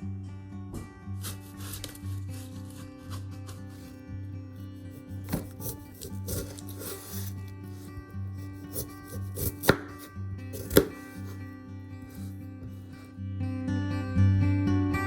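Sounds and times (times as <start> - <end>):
background music: 0.0 - 15.0
knife chopping on cutting board: 5.2 - 11.4.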